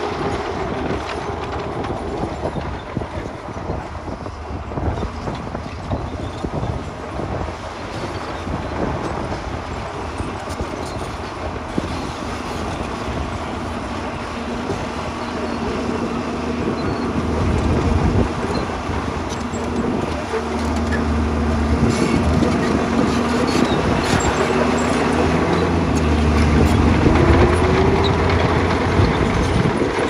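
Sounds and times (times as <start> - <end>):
diesel engine rumbling under load: 0.0 - 30.0
steady engine tone: 8.4 - 30.0.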